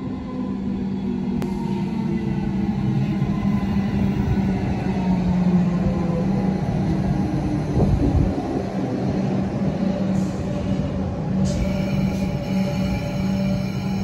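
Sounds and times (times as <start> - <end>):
electric train hum: 0.0 - 14.0
high multi-tone squeal: 11.4 - 14.0.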